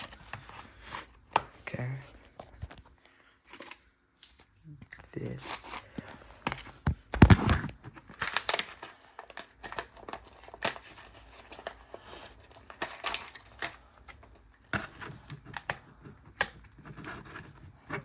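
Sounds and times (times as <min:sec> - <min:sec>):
plastic packaging crinkling: 0:05.4 - 0:17.4.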